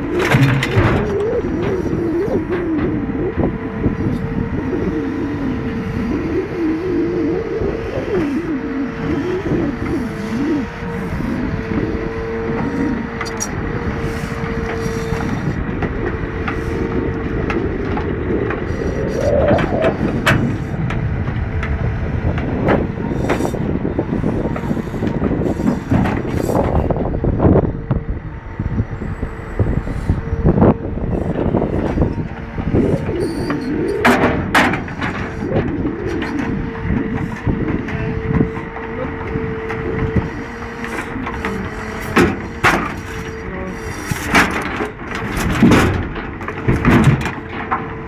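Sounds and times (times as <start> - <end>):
hydraulic pump whine: 0.0 - 48.0
truck engine running under load: 0.0 - 48.0.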